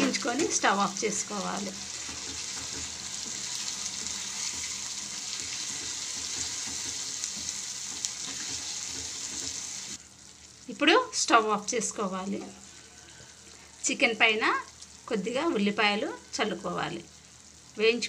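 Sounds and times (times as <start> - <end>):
food sizzling in pan: 0.0 - 18.0
spatula scraping pan: 1.6 - 10.0.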